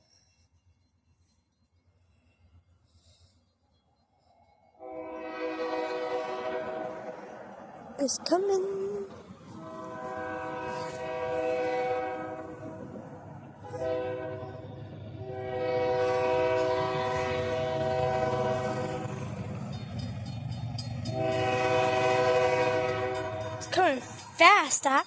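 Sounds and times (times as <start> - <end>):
locomotive air horn blasts: 4.8 - 7.4, 9.5 - 13.0, 13.6 - 19.4, 21.1 - 23.7
locomotive engine rumble: 4.8 - 25.0.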